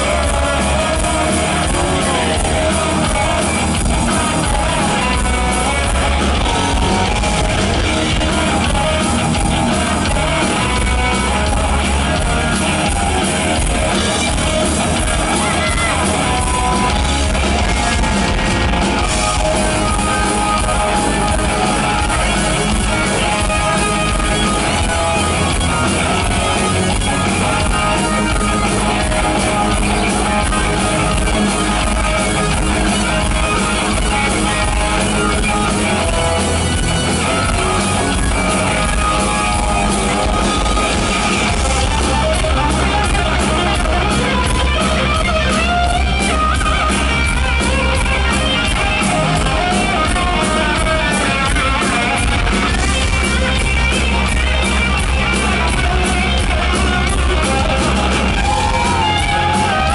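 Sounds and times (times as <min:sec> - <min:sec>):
person singing: 0:00.0 - 0:46.0
bass: 0:00.0 - 0:59.9
drums: 0:00.0 - 0:59.9
electric guitars: 0:00.0 - 0:59.9.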